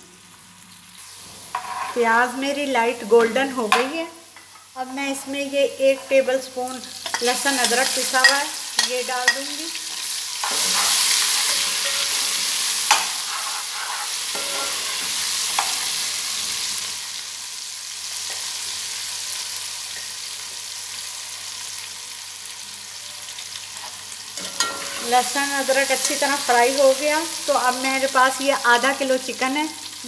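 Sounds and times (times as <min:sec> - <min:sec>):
paste sizzling in hot oil: 0:00.7 - 0:30.0
metal spatula clinking on pot: 0:07.0 - 0:09.5, 0:10.4 - 0:12.3, 0:24.4 - 0:25.0.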